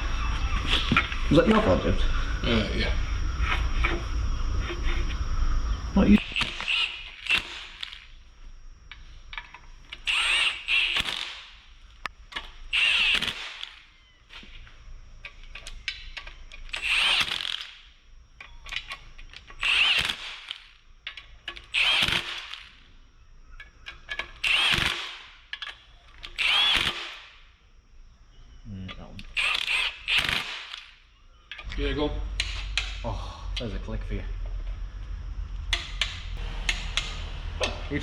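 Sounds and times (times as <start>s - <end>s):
handheld power tool bursts: 6.2s - 8.2s, 9.4s - 11.7s, 12.3s - 14.6s, 15.6s - 17.9s, 18.7s - 22.8s, 24.1s - 27.4s, 29.2s - 31.0s.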